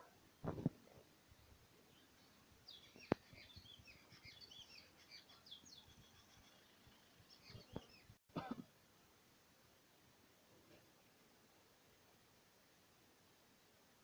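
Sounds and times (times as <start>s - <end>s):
faint birds chirping: 0.2s - 8.2s.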